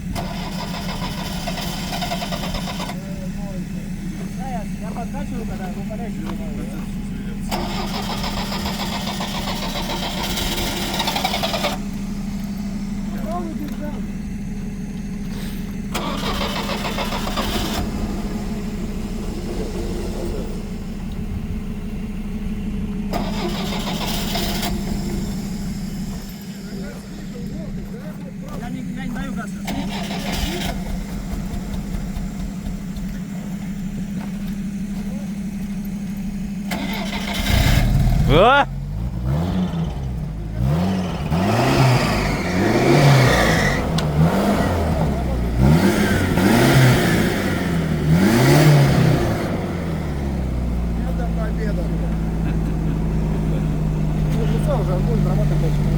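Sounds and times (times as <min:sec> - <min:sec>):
loud hissing: 0:00.0 - 0:14.1, 0:15.3 - 0:27.8
petrol engine idling: 0:00.0 - 0:55.9.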